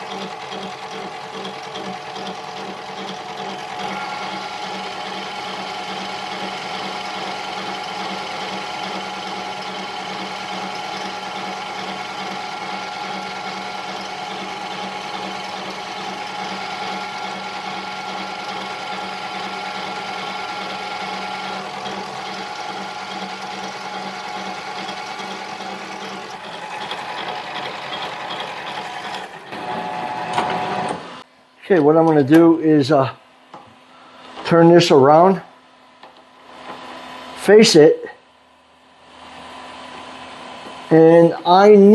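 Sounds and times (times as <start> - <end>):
lathe motor whine and hum: 0.0 - 31.2.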